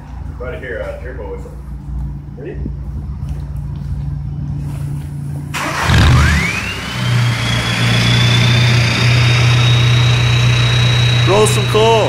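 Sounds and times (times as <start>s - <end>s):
diesel engine revving: 5.5s - 12.0s
turbocharger whistle: 5.6s - 12.0s.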